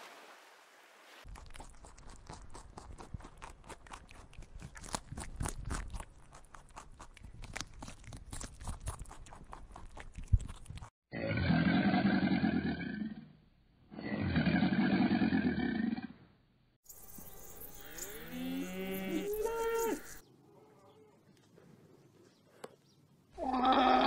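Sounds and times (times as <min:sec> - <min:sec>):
deep growling animal roar: 0:11.1 - 0:13.3, 0:14.0 - 0:16.2.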